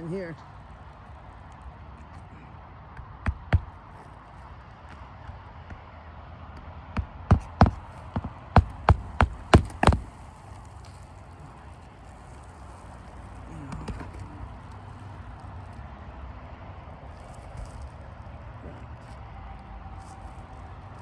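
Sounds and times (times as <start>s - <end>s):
hammer driving nail into shingle: 3.0s - 4.2s, 6.6s - 10.3s.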